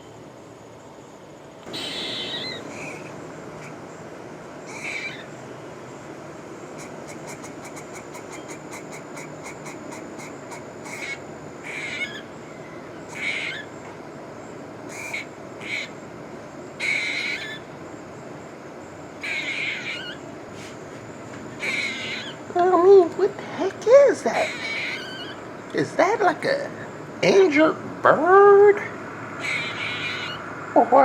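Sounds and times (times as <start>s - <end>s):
bird clicking and raspy calls: 1.6s - 3.8s, 4.7s - 5.4s, 6.7s - 13.9s, 14.9s - 16.0s, 16.8s - 17.7s, 19.2s - 20.3s, 21.6s - 22.5s, 24.4s - 25.8s, 29.4s - 30.5s.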